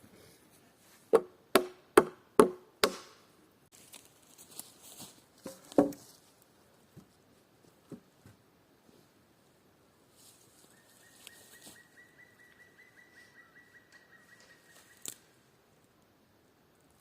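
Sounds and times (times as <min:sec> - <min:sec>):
hammer striking wood: 0:01.1 - 0:03.2.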